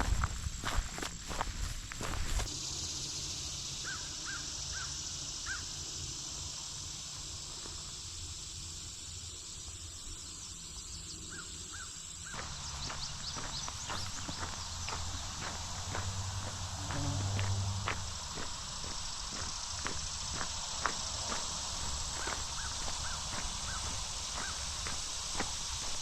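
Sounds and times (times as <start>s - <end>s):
footsteps on trail: 0.0s - 2.5s, 12.3s - 26.0s
high-pitched hiss: 0.0s - 26.0s
bird calls: 10.9s - 16.1s, 19.4s - 26.0s.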